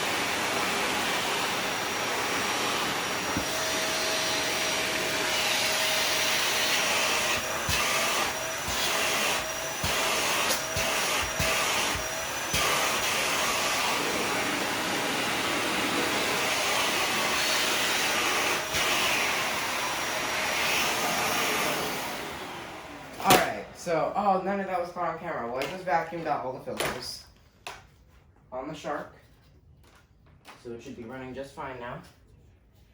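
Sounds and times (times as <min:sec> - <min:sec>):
vacuum cleaner running: 0:00.0 - 0:24.7.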